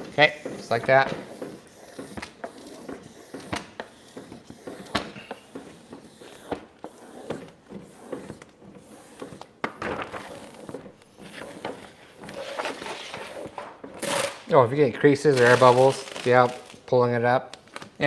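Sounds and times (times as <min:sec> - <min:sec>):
vinyl wrap crinkling and rustling: 0:15.0 - 0:16.9.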